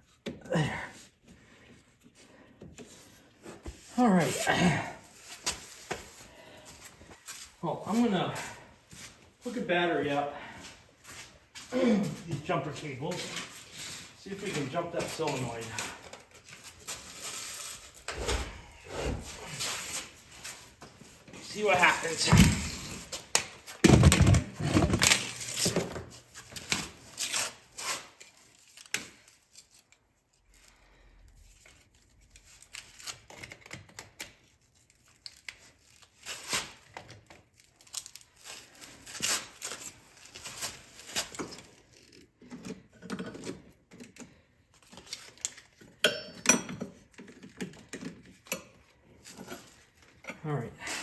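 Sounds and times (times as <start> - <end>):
metal clanks of tools: 46.0 - 47.0.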